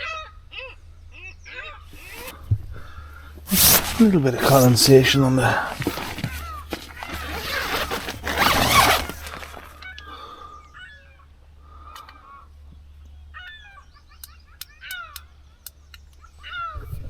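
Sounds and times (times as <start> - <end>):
loud rustling: 1.9 - 2.4, 3.4 - 9.9.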